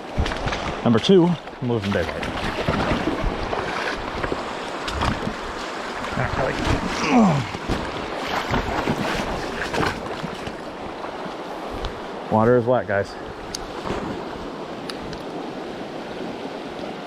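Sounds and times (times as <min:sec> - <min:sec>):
knocks and splashes: 0:00.0 - 0:12.0, 0:13.5 - 0:15.3
stream water rushing: 0:00.0 - 0:17.0
wind buffeting microphone: 0:02.1 - 0:12.3.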